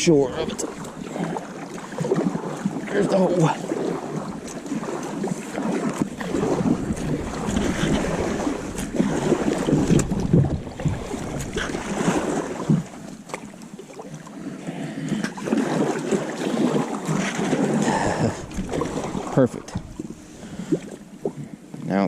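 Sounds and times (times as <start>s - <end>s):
water splashing around kayak: 0.0s - 22.0s
wind rumble on microphone: 5.9s - 13.1s, 17.1s - 21.5s.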